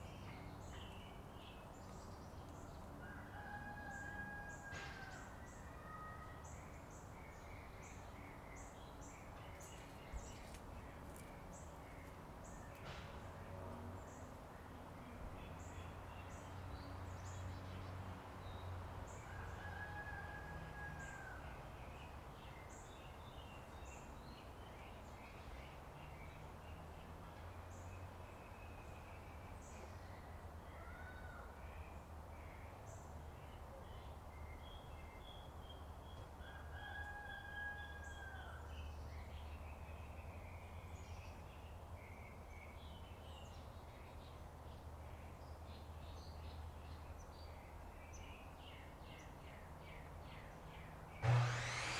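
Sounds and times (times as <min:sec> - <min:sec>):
rooster crowing: 0:03.0 - 0:05.3, 0:19.3 - 0:21.4, 0:36.5 - 0:38.6
low machine hum: 0:51.2 - 0:51.9.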